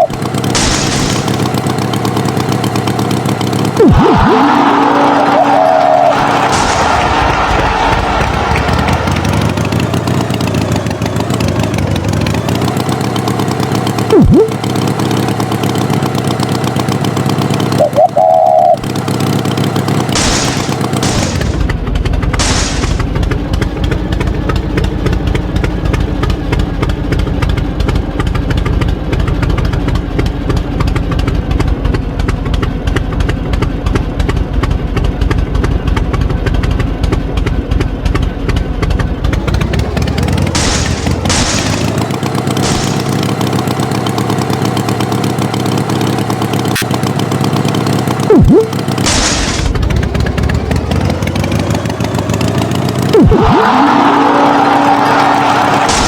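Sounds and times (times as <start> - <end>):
tractor engine running: 0.0 - 56.0
brief high tone: 17.8 - 18.8, 48.3 - 48.8.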